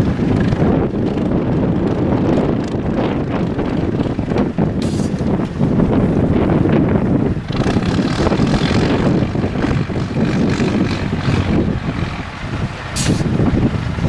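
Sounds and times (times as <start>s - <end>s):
diesel truck engine running: 0.0s - 14.0s
short hiss: 4.8s - 5.2s, 13.0s - 13.3s.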